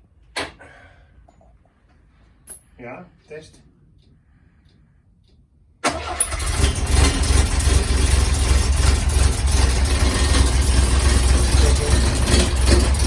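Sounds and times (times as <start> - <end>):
car engine starting and running: 5.8 - 13.0.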